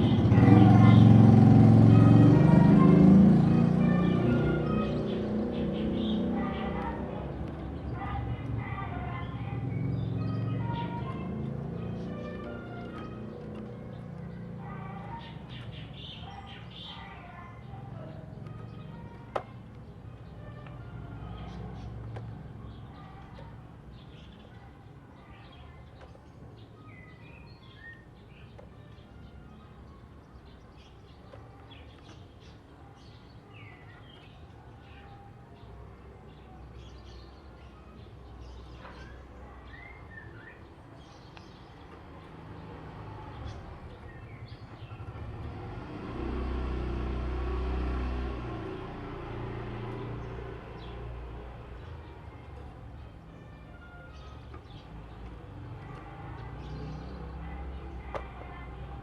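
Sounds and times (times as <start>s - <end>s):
vehicle engine rumbling past: 0.0s - 16.8s, 41.8s - 52.8s.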